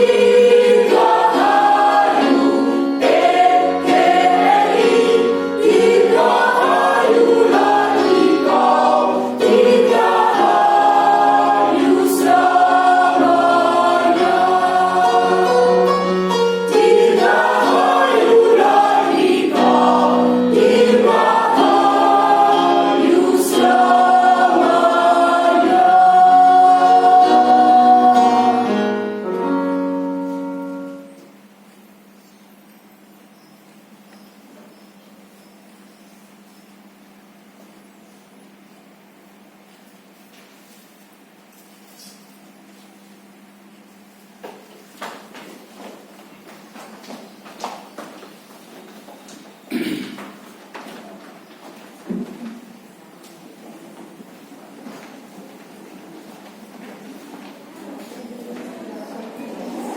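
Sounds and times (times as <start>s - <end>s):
choir singing: 0.0s - 31.1s.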